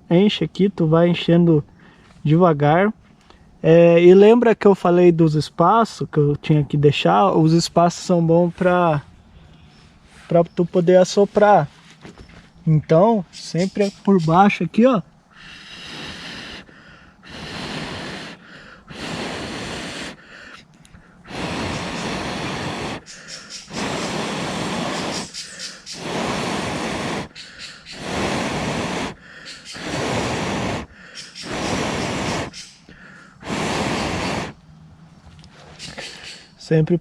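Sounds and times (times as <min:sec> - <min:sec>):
person inhaling: 0:01.8 - 0:02.2, 0:15.3 - 0:34.6
person blowing on fire: 0:15.3 - 0:34.6.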